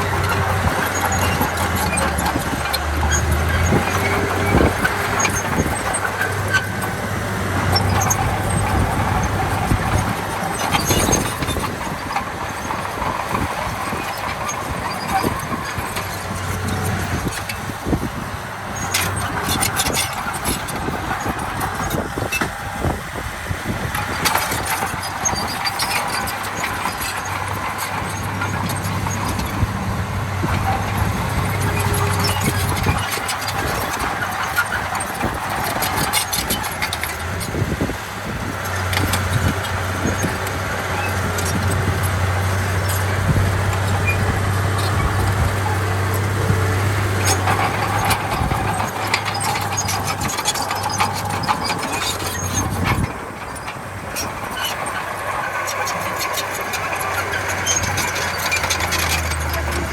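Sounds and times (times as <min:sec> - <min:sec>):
diesel machinery engine drone: 0:00.0 - 0:59.9
metallic clicks and clanks: 0:38.6 - 0:59.9.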